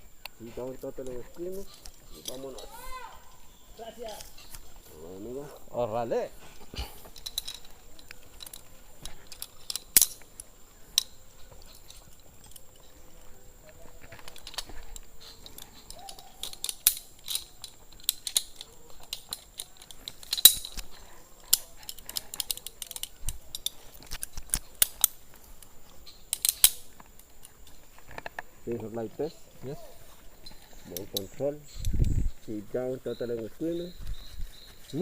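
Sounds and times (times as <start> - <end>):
metallic clicks of zipline gear: 0.2 - 3.2, 7.0 - 29.0.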